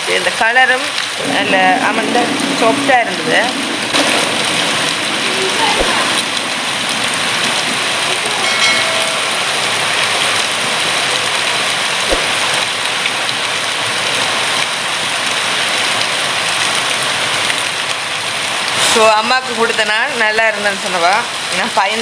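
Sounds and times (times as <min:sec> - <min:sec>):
short knock: 0:12.1 - 0:12.4.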